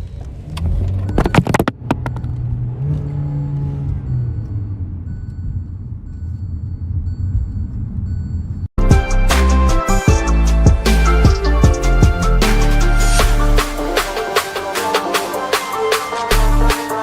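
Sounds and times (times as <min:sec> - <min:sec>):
car engine revving: 0:00.2 - 0:05.1.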